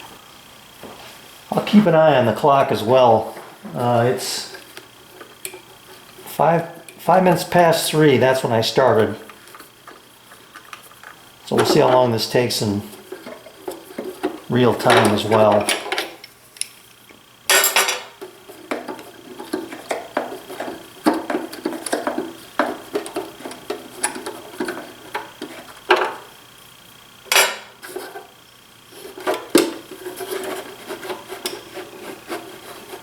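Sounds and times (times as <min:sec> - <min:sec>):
parts clicking and rattling: 0:08.9 - 0:16.8, 0:17.5 - 0:26.3.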